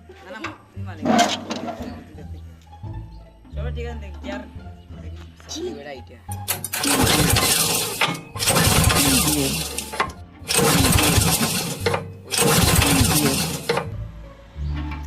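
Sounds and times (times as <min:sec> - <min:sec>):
tractor engine starting: 0:01.0 - 0:02.2, 0:06.3 - 0:15.0.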